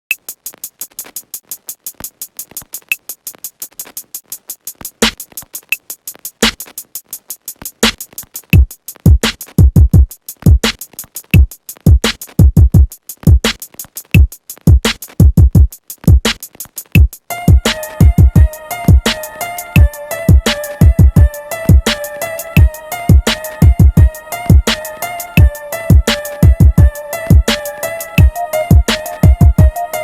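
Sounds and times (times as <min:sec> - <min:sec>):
hi-hat ticks: 0:00.1 - 0:18.4
snare hits: 0:06.4 - 0:06.7
hip-hop beat: 0:17.0 - 0:30.0.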